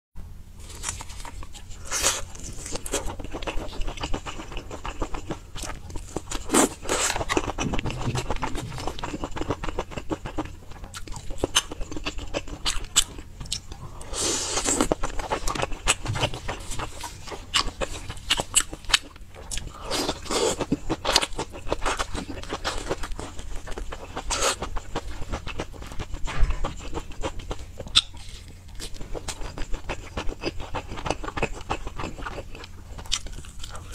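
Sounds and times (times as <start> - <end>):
chewing with wet smacks: 0.8 - 33.9.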